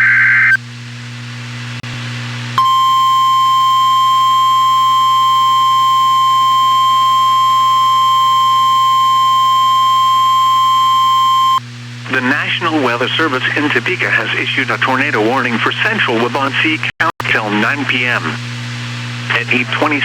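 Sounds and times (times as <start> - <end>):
steady alarm tone: 2.6 - 11.6.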